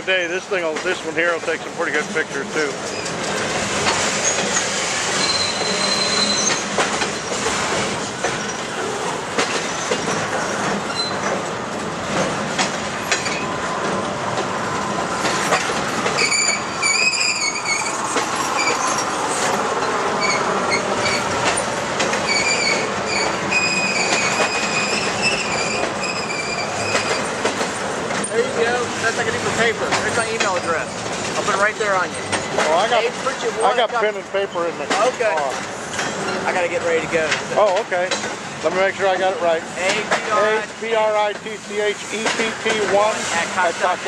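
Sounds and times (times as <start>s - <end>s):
train wheels rumbling on rails: 0.0s - 44.0s
high-pitched wheel squeal: 4.2s - 7.4s, 10.9s - 11.2s, 15.5s - 21.3s, 22.2s - 27.4s
clicks over rail joints: 6.4s - 14.5s, 18.1s - 23.3s, 24.0s - 28.6s, 34.8s - 38.8s, 41.1s - 43.3s.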